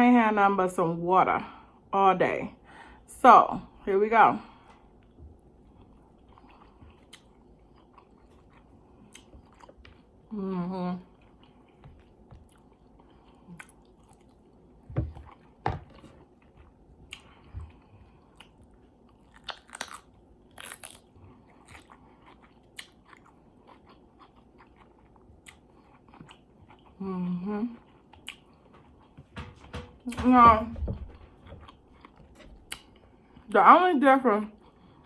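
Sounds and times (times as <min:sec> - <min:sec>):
close chewing and crunching: 0:04.9 - 0:10.4, 0:11.0 - 0:29.2, 0:31.2 - 0:33.6.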